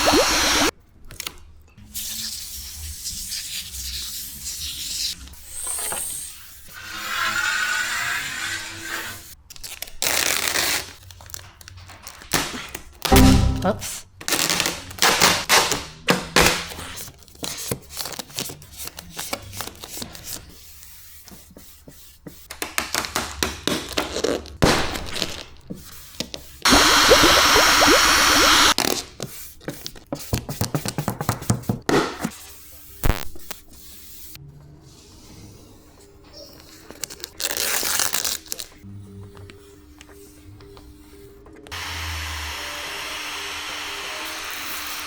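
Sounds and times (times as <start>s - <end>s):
vinyl film crinkling: 36.7s - 38.8s.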